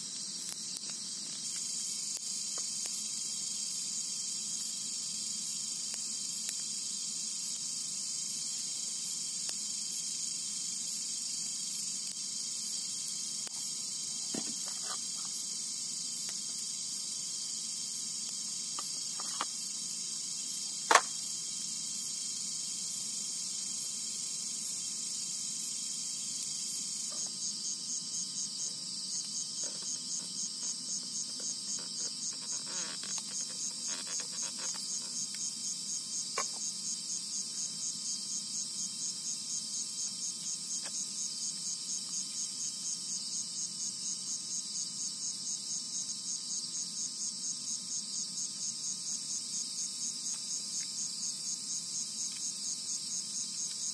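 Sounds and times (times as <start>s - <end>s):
crickets chirping: 0.0s - 53.9s
insect pulsing call: 0.0s - 53.9s
sharp click: 20.9s - 21.2s.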